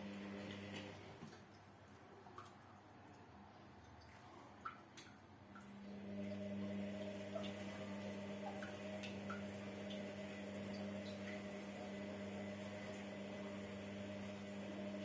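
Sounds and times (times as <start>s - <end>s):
washing machine motor hum: 0.0s - 1.4s, 5.6s - 15.0s.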